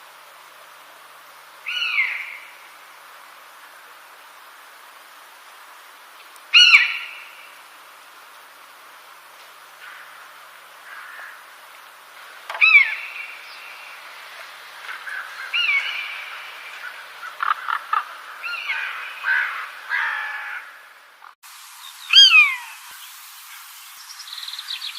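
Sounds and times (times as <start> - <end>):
faint steady hiss: 0.0 - 24.9
bird calling: 1.6 - 2.7, 6.5 - 7.6, 12.5 - 24.9.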